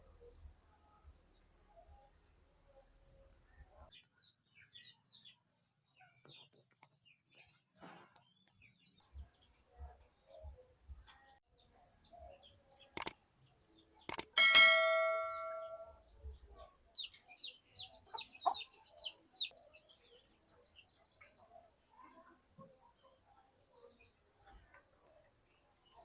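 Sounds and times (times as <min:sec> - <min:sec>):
small bird chirping: 0:00.1 - 0:26.0
clicks: 0:13.0 - 0:13.2, 0:14.1 - 0:15.8
sharp metallic clang: 0:14.2 - 0:16.0.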